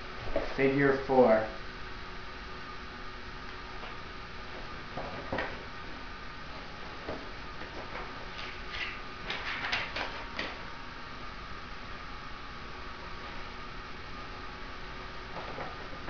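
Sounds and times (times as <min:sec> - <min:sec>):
steady background hiss: 0:00.0 - 0:16.0
clicks and rustles of handling: 0:06.8 - 0:10.6.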